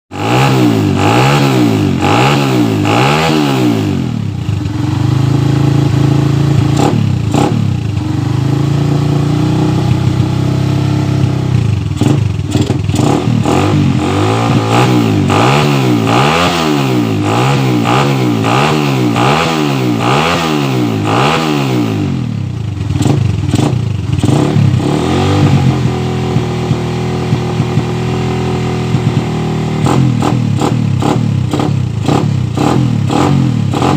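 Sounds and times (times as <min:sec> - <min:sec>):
motorcycle engine revving: 0:00.1 - 0:33.9.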